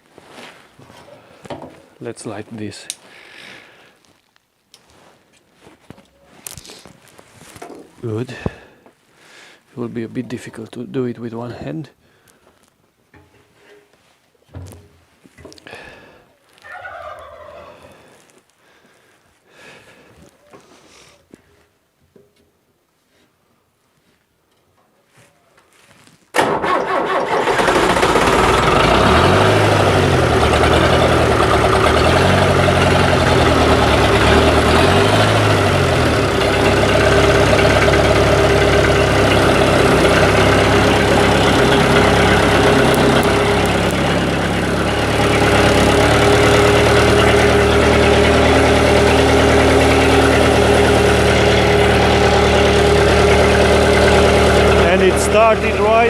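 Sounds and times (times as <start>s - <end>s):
diesel tractor engine starting and idling: 26.3s - 56.0s.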